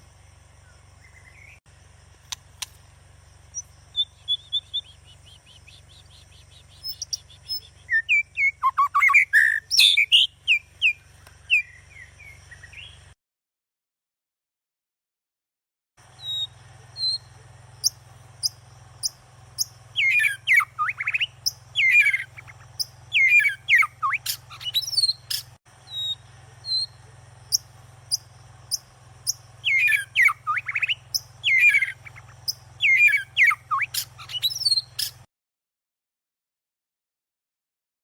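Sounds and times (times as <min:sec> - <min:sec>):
low steady hum: 0:00.0 - 0:13.1
birds calling: 0:00.0 - 0:13.2, 0:16.0 - 0:35.3
high bird chirps: 0:03.5 - 0:13.2, 0:16.0 - 0:35.3.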